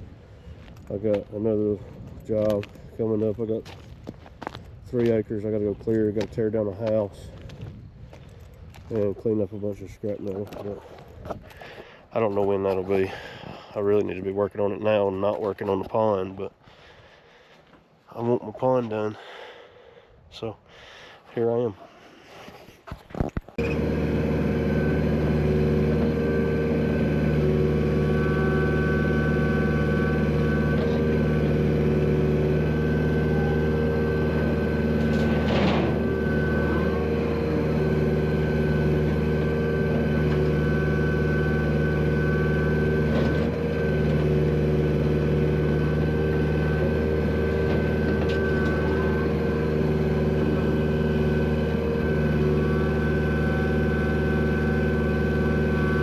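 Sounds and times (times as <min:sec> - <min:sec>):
steady high whine: 0:23.6 - 0:44.0
heavy equipment engine running: 0:23.6 - 0:56.0.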